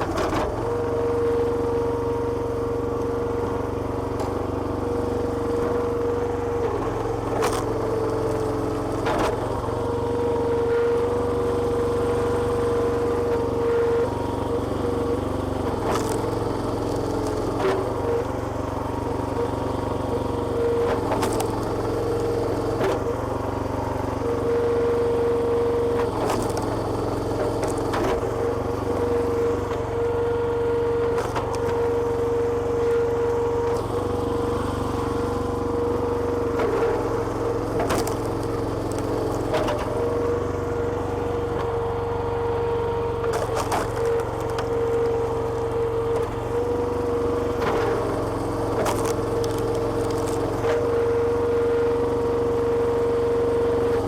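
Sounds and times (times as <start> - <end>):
hydraulic whine: 0.0 - 54.0
small petrol engine running: 0.0 - 54.0
wood splitting cracks: 48.8 - 50.8.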